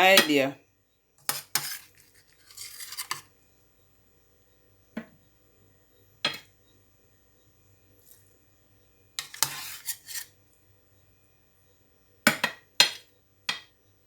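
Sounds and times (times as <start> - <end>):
short scraping: 1.3 - 3.2, 9.2 - 10.3.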